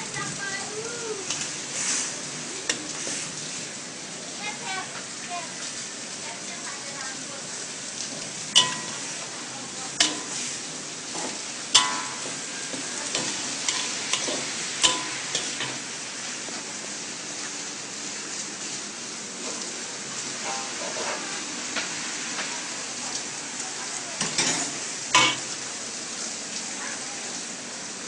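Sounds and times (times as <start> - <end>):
noodles sizzling in pan: 0.0 - 28.0
metal utensil clanking on pan: 8.5 - 15.9, 20.4 - 21.2, 24.2 - 25.6.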